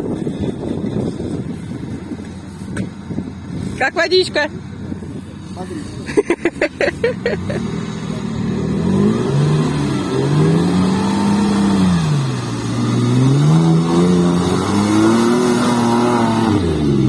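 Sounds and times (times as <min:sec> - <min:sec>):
off-road vehicle engine revving: 0:03.5 - 0:17.0.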